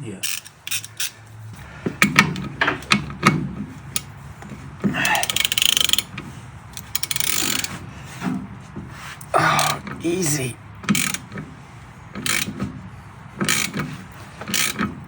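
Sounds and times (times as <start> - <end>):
socket wrench ratchet clicking: 0.2 - 1.2, 5.0 - 6.1, 6.7 - 7.7, 10.9 - 11.2, 12.2 - 12.5, 13.4 - 13.8, 14.5 - 14.8.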